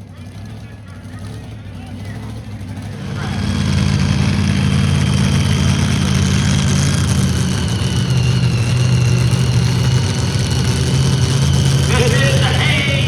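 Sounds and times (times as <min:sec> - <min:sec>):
tractor engine running: 0:00.0 - 0:13.0
high whine: 0:04.0 - 0:13.0.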